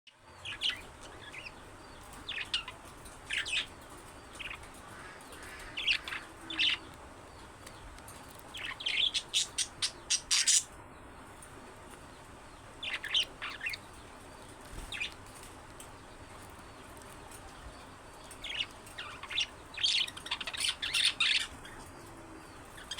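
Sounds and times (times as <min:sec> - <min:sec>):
budgerigars chirping: 0:00.4 - 0:03.7, 0:04.4 - 0:07.0, 0:08.6 - 0:10.7, 0:12.8 - 0:13.9, 0:17.8 - 0:22.9.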